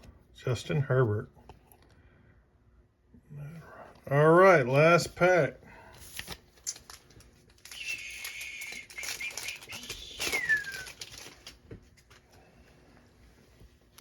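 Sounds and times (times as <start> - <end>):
plastic wrapper tearing: 6.1 - 11.7.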